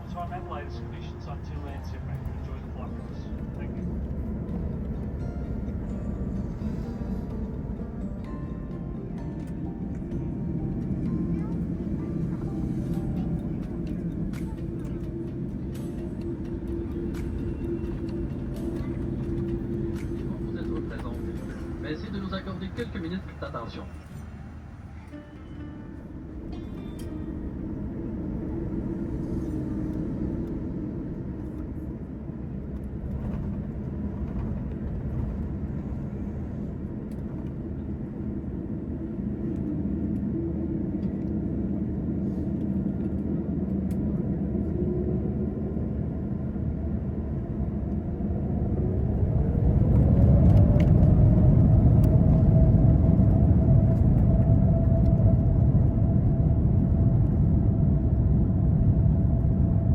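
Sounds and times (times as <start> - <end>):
jet engine rumble: 0.0 - 59.9
jet engine whine rising: 0.0 - 59.9.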